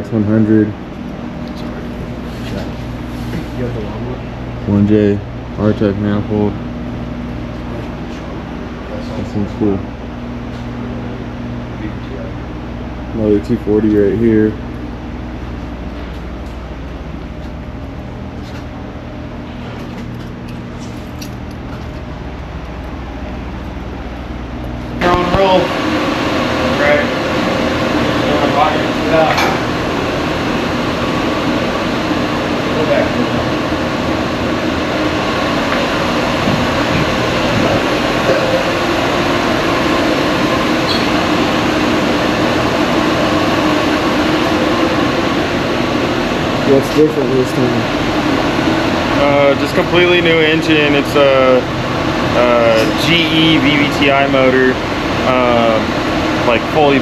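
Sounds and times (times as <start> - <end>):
low mechanical drone: 0.0 - 57.0
ventilation blower air noise: 0.0 - 57.0.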